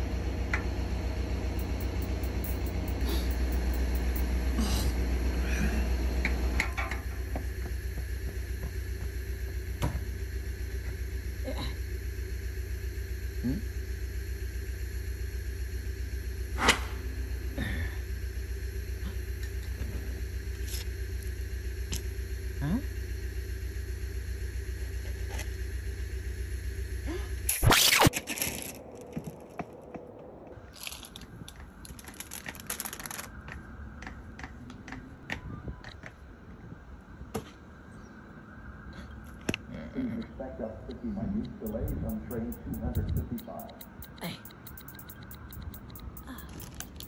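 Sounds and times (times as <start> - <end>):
stationary train rumble: 0.0 - 27.5, 40.7 - 47.0
small clicks and creaks: 43.0 - 47.0.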